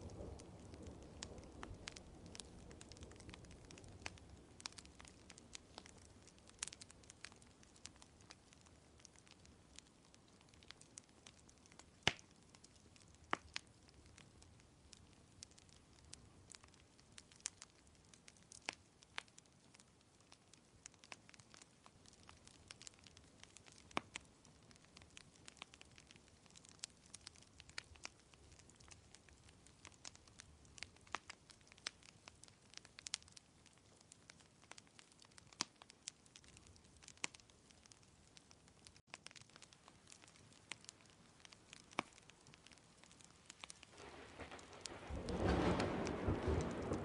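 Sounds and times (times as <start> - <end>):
faint low hiss: 0.0 - 47.0
wood fire crackling: 0.0 - 47.0.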